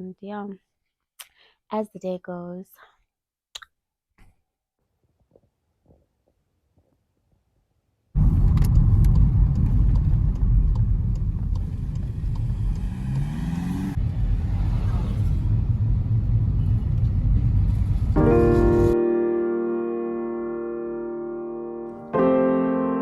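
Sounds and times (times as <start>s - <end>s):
car engine and road noise: 8.2s - 19.0s.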